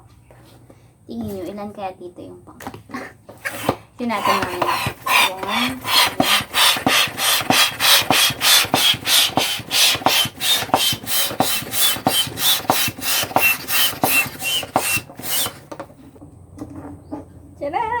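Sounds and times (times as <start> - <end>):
hand pump strokes: 3.3 - 16.0.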